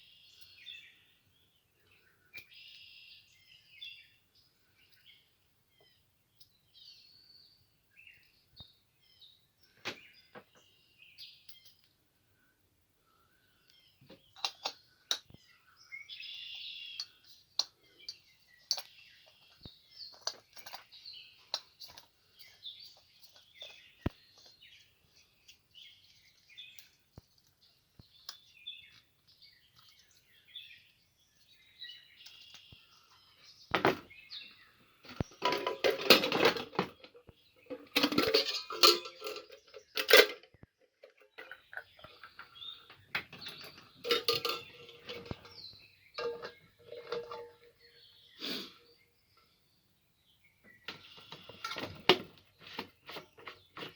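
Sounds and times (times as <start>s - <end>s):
small birds chirping: 0.0s - 53.9s
pots and dishes clattering: 35.4s - 37.0s, 37.7s - 40.4s, 43.5s - 45.6s, 46.2s - 47.7s.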